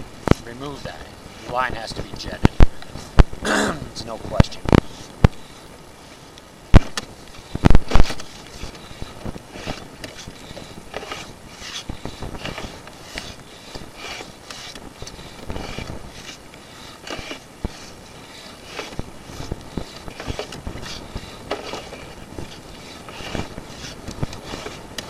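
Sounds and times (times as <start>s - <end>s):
cable scraping inside pipe: 4.7s - 25.0s.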